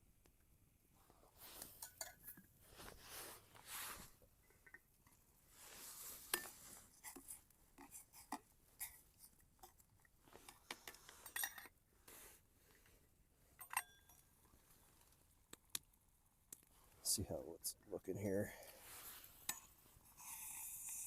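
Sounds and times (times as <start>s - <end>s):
metal cookware clinking: 13.6s - 14.2s.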